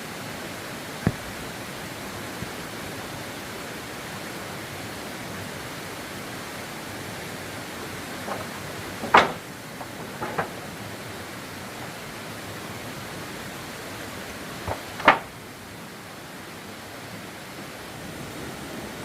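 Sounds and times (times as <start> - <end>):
steady rushing hiss: 0.0 - 19.0
short sharp knocks: 8.3 - 10.6, 14.7 - 15.3.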